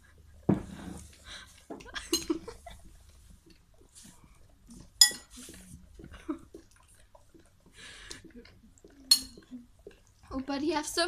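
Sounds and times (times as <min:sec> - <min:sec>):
dog eating: 0:01.0 - 0:10.8
utensil clinking against dish: 0:05.0 - 0:05.4, 0:09.1 - 0:09.5.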